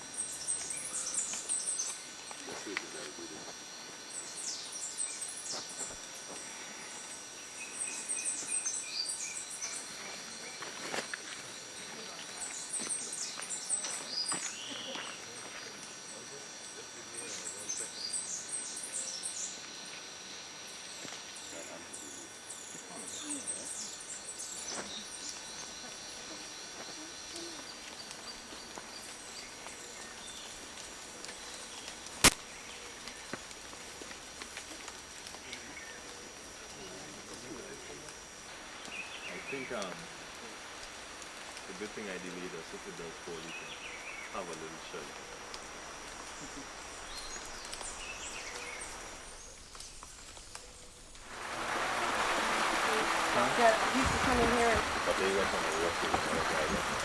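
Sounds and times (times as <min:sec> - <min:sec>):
bird calling evenly spaced notes: 0:00.0 - 0:02.3, 0:03.8 - 0:06.0, 0:06.9 - 0:10.7, 0:16.1 - 0:34.0, 0:35.4 - 0:39.9, 0:41.2 - 0:51.5
birds chirping: 0:00.0 - 0:57.0
high-pitched insect drone: 0:00.0 - 0:57.0
sharp clicks: 0:31.8 - 0:33.2.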